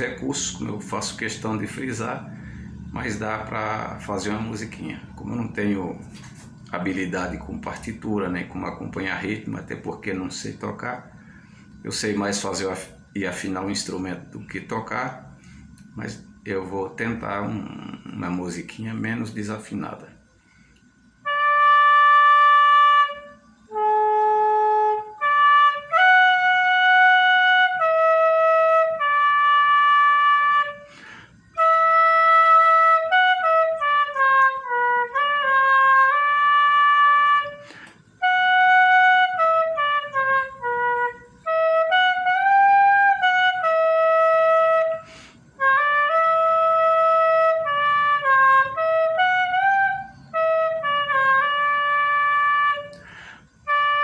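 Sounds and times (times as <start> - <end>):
fife playing a simple tune: 21.2 - 54.0.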